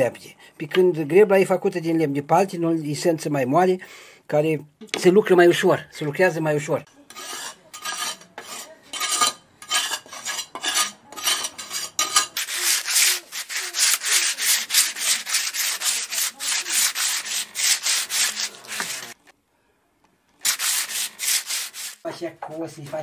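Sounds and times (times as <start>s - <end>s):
wooden handle rasping strokes: 7.1s - 19.2s, 20.4s - 22.1s.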